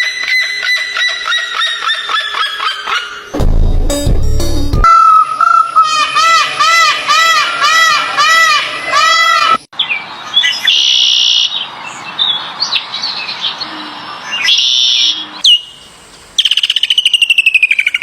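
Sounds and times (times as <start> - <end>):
high drawn-out bird calls: 4.8 - 18.0.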